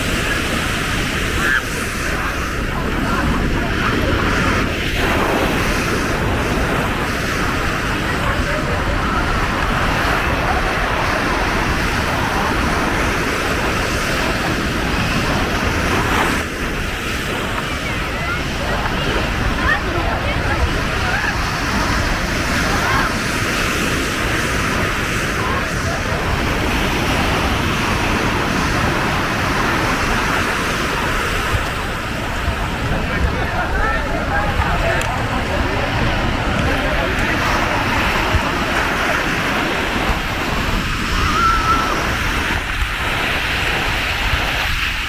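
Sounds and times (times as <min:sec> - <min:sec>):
ocean surf breaking: 0:00.0 - 0:45.0
wind on microphone: 0:00.0 - 0:45.0.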